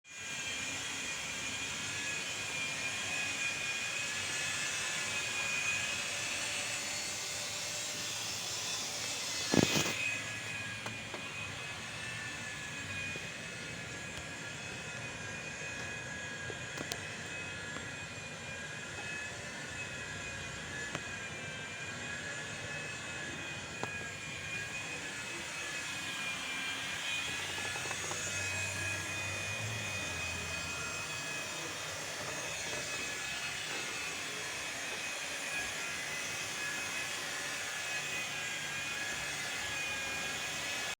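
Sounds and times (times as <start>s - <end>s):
high wavering whine: 0.2s - 40.9s.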